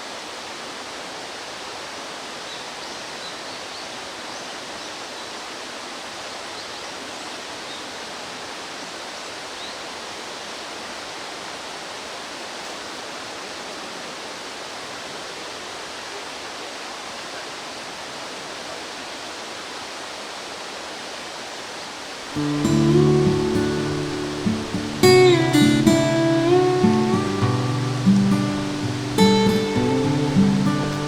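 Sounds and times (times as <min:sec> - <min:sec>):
mountain stream rushing: 0:00.0 - 0:31.0.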